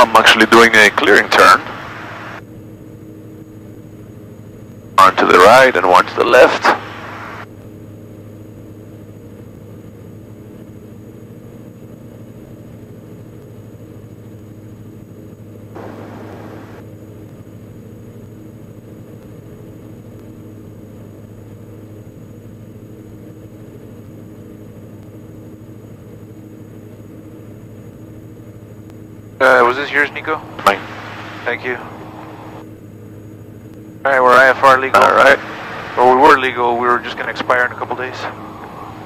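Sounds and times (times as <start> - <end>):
aircraft engines and propellers droning: 0.0 - 39.0.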